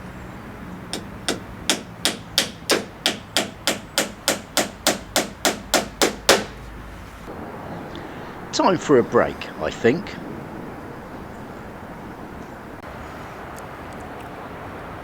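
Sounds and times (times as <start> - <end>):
hammer blows on timber: 0.9 - 6.8.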